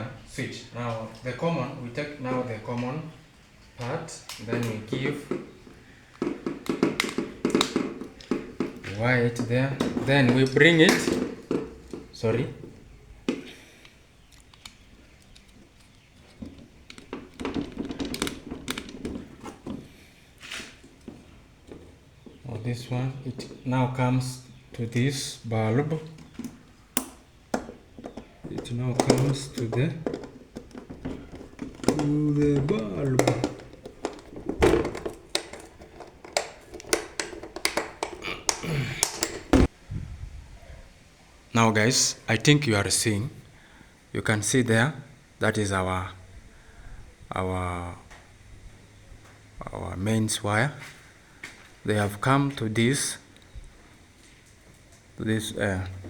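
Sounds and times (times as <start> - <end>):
electrical wire clicks and rustling: 0.2 - 39.8.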